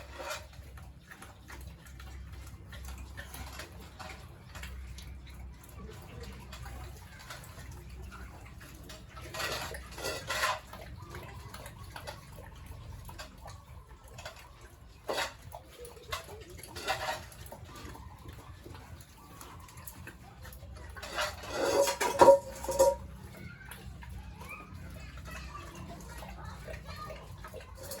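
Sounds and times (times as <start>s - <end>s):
metal clattering and scraping: 0.0s - 5.2s, 5.8s - 20.2s, 20.8s - 23.4s.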